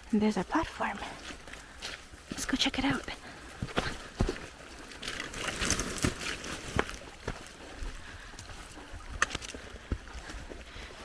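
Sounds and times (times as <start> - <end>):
footsteps on forest trail: 0.0 - 11.0
rustling: 4.8 - 7.0.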